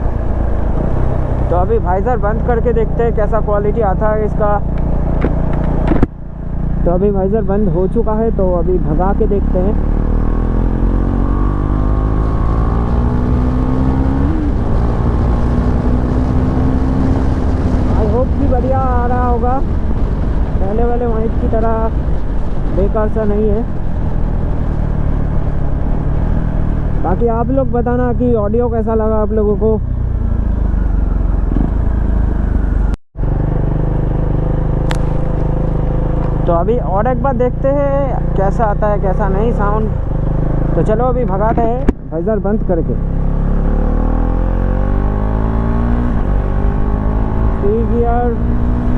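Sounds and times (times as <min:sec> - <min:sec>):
low wind rush: 0:00.0 - 0:48.9
motorcycle engine accelerating: 0:00.0 - 0:48.9
motorcycle engine running: 0:30.0 - 0:43.0.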